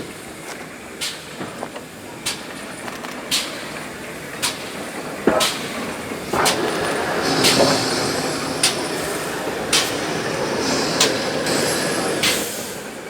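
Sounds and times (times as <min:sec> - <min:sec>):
train rumbling: 0:00.0 - 0:13.0
wheels clicking over rail joints: 0:00.0 - 0:13.0.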